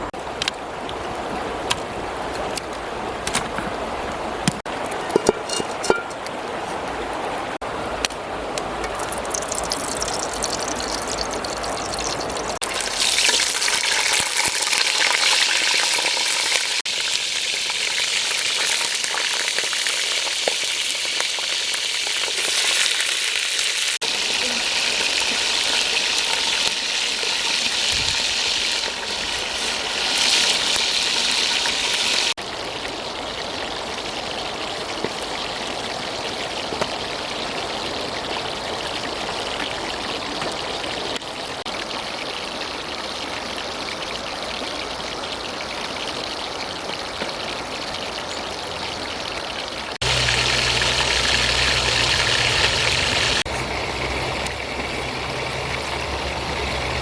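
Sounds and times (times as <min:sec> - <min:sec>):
food sizzling in a pan: 0:12.6 - 0:32.4, 0:50.0 - 0:53.5.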